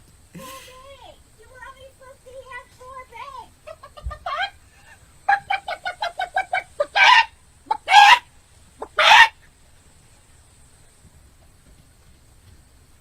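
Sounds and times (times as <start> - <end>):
chicken squawking: 0.4 - 0.9, 3.7 - 9.4
chicken clucking: 3.6 - 8.2.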